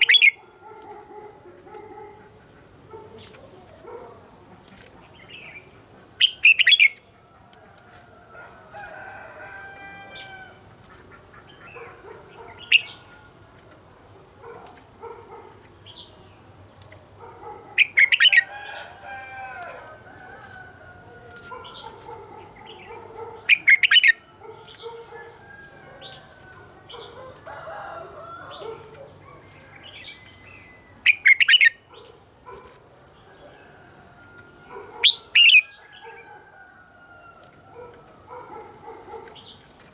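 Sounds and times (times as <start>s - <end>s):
bird warbling song: 0.0s - 39.9s
sharp bird call bursts: 35.0s - 35.7s.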